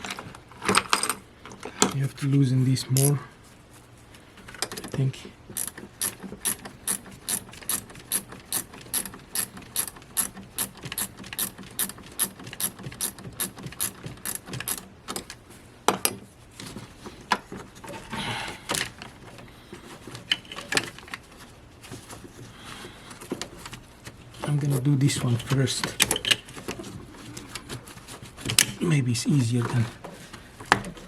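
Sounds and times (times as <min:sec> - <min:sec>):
ratchet wrench clicking: 0:05.6 - 0:14.8.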